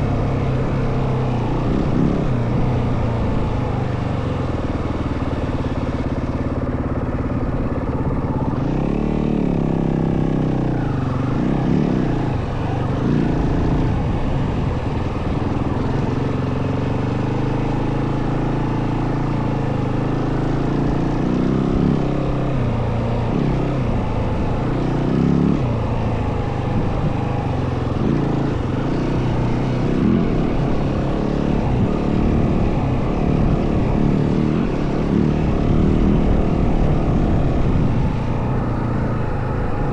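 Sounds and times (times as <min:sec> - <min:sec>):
dirt bike engine revving: 0:08.3 - 0:39.2.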